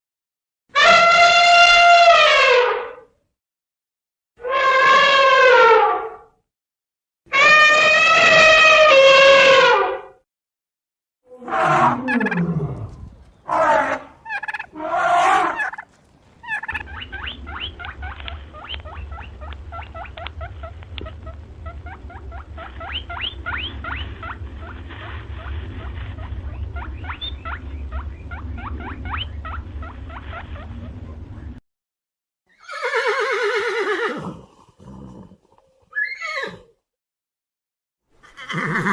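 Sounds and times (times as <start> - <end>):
loud animal calls: 11.3 - 31.2
low steady hum: 12.2 - 31.6
flock of birds chirping: 15.5 - 31.6.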